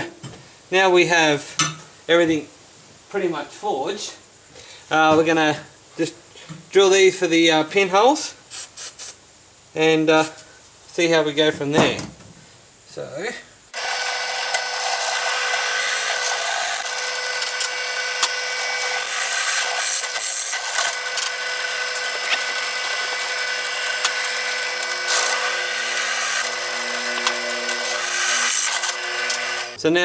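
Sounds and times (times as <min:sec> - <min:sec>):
electric drill motor whine: 0:13.7 - 0:29.8.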